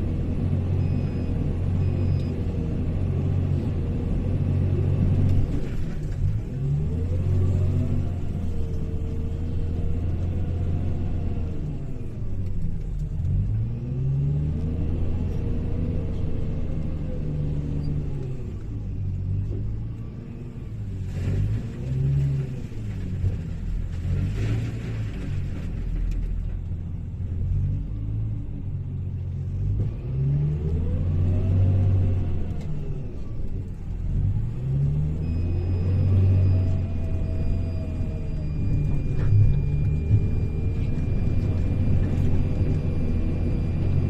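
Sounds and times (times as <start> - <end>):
diesel engine revving: 0.0 - 25.5, 26.9 - 44.0.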